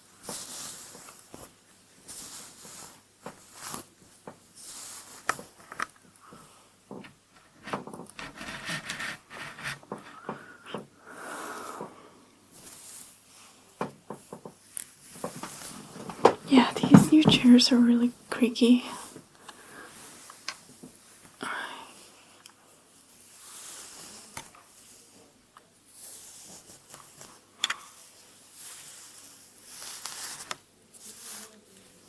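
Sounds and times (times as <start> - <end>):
salon chair creaking: 6.9 - 10.5
hair brushed against microphone: 23.2 - 25.3, 28.0 - 32.0.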